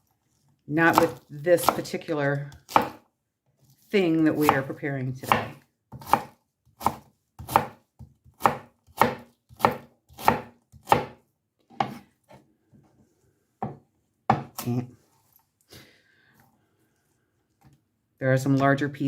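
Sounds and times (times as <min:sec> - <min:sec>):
knife chopping cabbage: 0:00.8 - 0:12.0.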